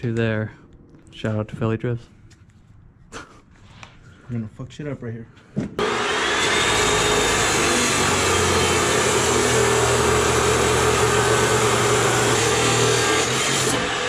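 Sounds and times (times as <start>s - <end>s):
power tool cutting metal: 5.8s - 14.0s.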